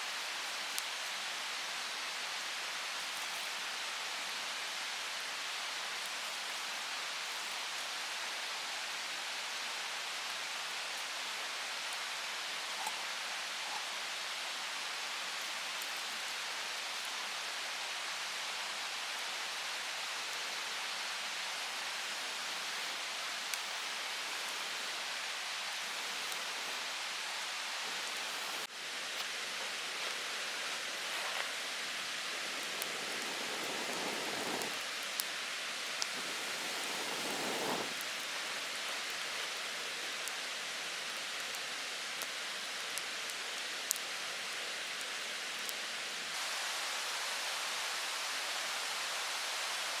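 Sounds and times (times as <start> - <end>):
hiss of water: 0.0 - 50.0
water hissing: 12.2 - 28.7, 32.0 - 38.6.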